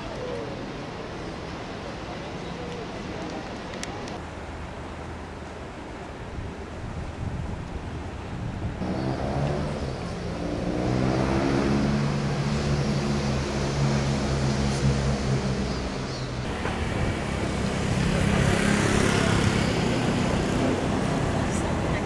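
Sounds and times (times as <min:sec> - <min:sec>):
road traffic noise: 0:00.0 - 0:22.0
vehicle engine accelerating: 0:08.8 - 0:22.0.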